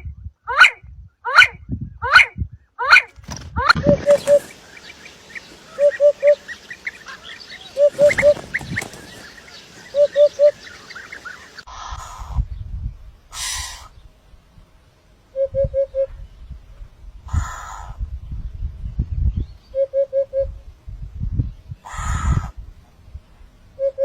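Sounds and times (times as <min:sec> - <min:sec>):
small birds chirping: 0:03.7 - 0:14.2
bird giving short low calls: 0:03.8 - 0:12.4.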